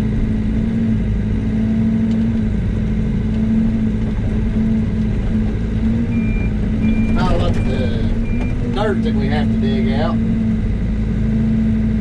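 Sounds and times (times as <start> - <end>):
excavator diesel engine idling: 3.9 - 10.2.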